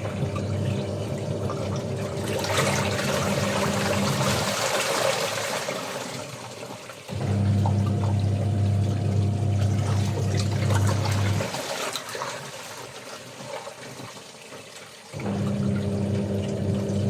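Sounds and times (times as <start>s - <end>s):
water trickling and splashing: 0.0s - 17.0s
electric motor hum: 7.2s - 11.4s, 15.2s - 17.0s.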